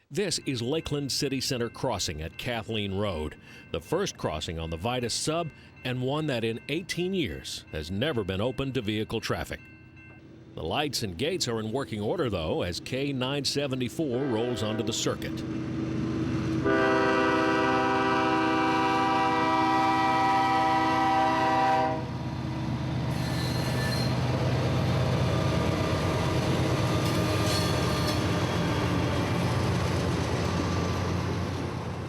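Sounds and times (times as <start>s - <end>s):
train engines rumbling: 0.0s - 32.0s
train horn blast: 14.1s - 15.4s, 16.6s - 22.2s
train wheels on rails: 22.1s - 32.0s.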